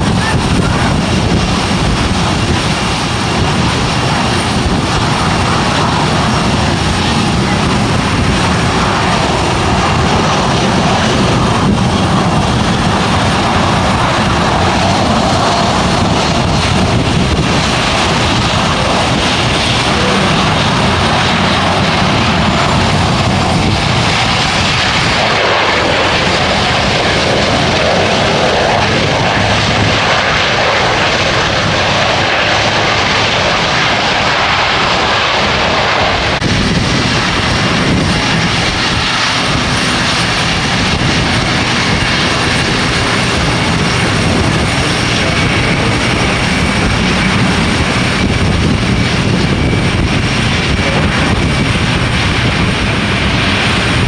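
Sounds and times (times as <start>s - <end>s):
jet engines roaring: 0.0s - 54.0s.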